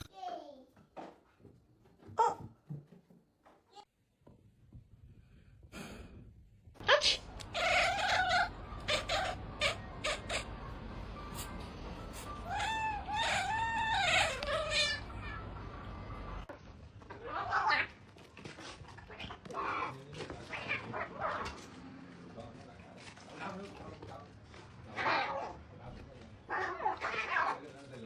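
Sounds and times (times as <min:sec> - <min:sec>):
cat meowing and yowling: 0:07.5 - 0:10.3, 0:12.4 - 0:15.6.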